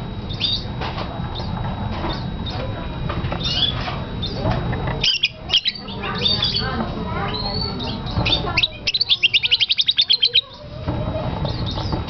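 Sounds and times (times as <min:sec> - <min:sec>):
budgerigar chirping: 0:05.0 - 0:06.7, 0:07.3 - 0:10.6.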